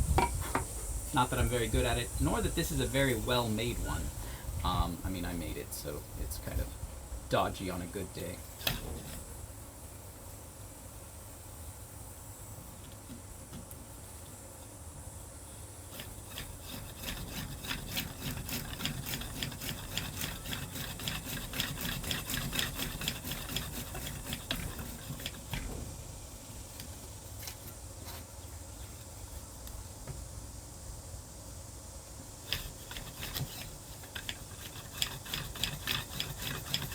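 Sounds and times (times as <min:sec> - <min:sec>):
hand drill rasping clicks: 0:16.0 - 0:25.6, 0:32.4 - 0:36.9.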